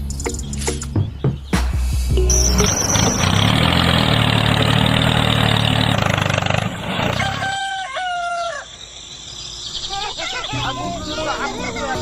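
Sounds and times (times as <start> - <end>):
rooster crowing: 7.1 - 8.8.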